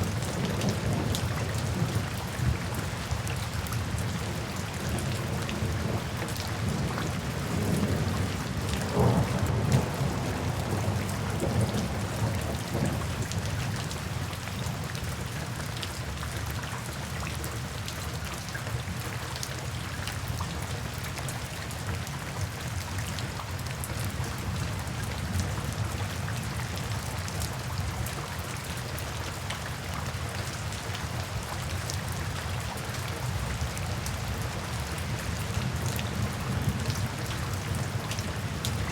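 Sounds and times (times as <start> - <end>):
steady rain falling: 0.0 - 38.9
low rumble of thunder: 3.8 - 13.9, 33.4 - 38.9.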